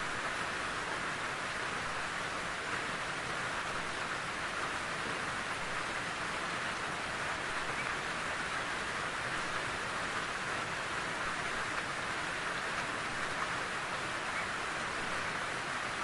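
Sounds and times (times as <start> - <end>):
steady rainfall: 0.0 - 16.0.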